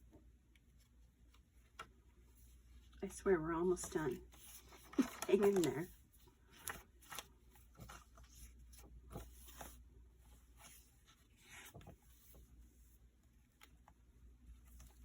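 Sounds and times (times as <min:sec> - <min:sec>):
paper pages rustling and turning: 0:00.6 - 0:15.0.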